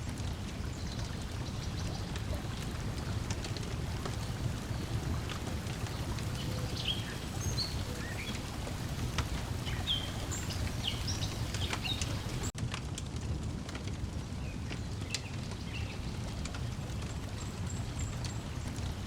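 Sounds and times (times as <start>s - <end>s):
breeze: 0.0s - 12.5s
water rumbling: 0.0s - 19.0s
wood fire crackling: 0.0s - 19.0s
birds chirping: 0.7s - 12.5s.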